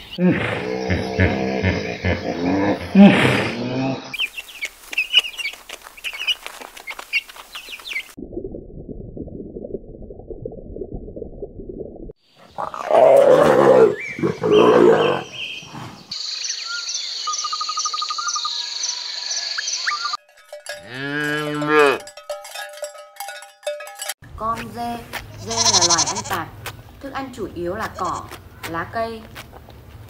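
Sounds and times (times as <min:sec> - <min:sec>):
loud animal growls: 0:00.2 - 0:04.1, 0:12.4 - 0:16.0
calf mooing: 0:25.4 - 0:26.4.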